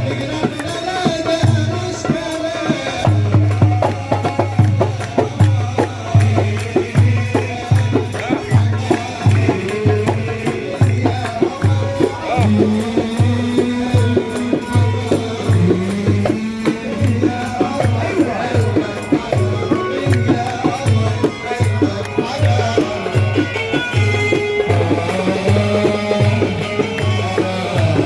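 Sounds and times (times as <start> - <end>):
shaken percussion: 0.0 - 28.0.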